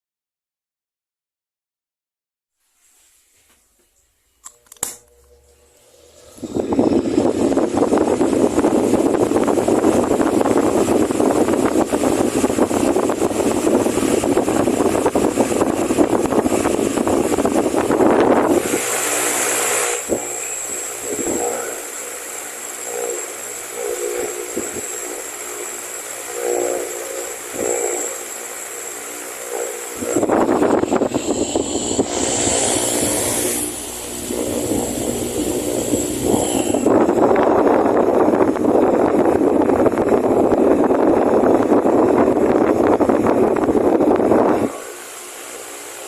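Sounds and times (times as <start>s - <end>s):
fan hiss: 2.6s - 46.0s
faint high whine: 3.8s - 46.0s
fan buffeting microphone: 4.5s - 46.0s.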